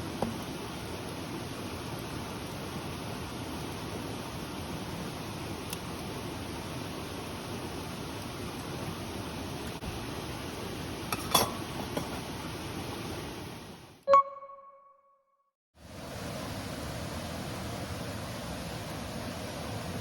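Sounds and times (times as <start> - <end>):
steady rain: 0.0 - 14.0, 15.8 - 20.0
bright metallic ding: 14.1 - 14.9.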